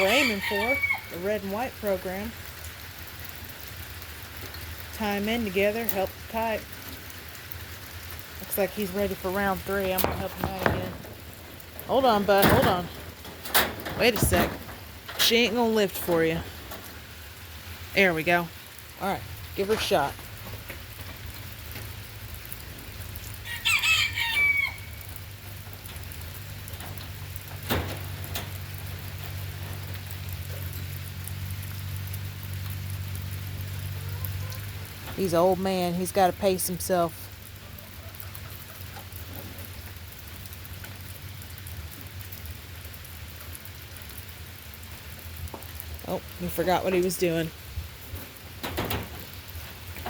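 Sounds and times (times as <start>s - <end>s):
rooster crowing: 0.0s - 1.2s, 23.4s - 25.1s
light rain: 0.0s - 50.0s
low steady rumble: 0.0s - 50.0s.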